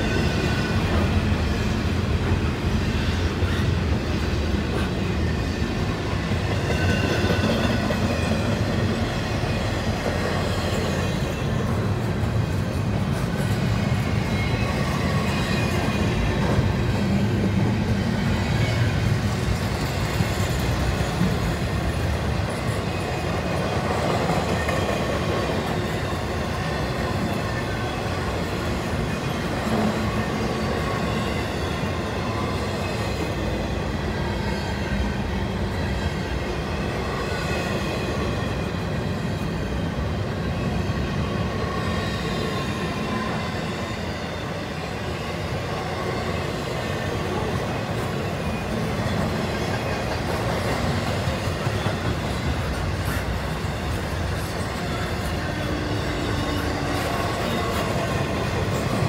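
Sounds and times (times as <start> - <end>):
train wheels rumbling on rail: 0.0 - 59.0
high wheel squeal: 50.8 - 59.0.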